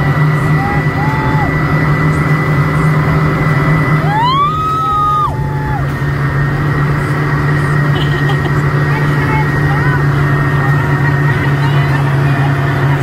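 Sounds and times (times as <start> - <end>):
motorboat engine running: 0.0 - 13.0
long high cry: 0.5 - 1.7, 4.0 - 5.9.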